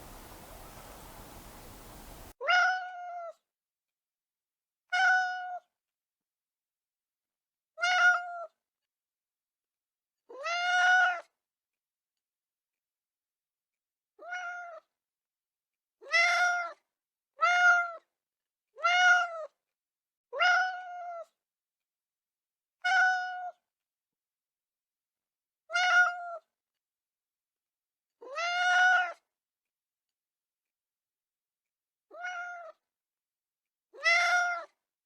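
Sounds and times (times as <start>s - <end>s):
cat meowing: 32.1s - 32.8s, 34.0s - 34.7s.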